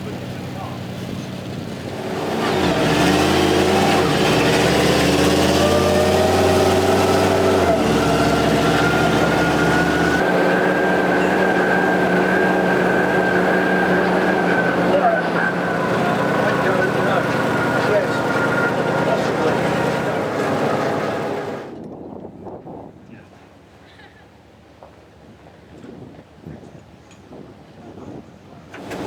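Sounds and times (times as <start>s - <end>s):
engine running with whine: 0.0s - 21.8s, 28.8s - 29.0s.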